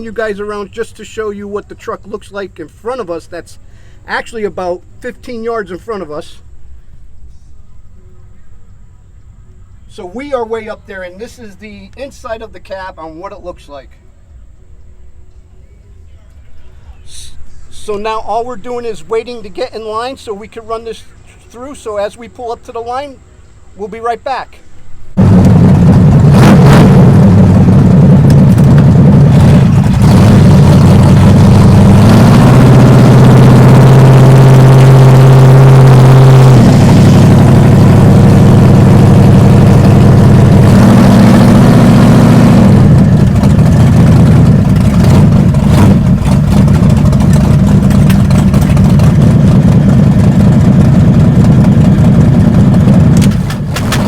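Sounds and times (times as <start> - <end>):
truck engine running hard: 25.2 - 54.0.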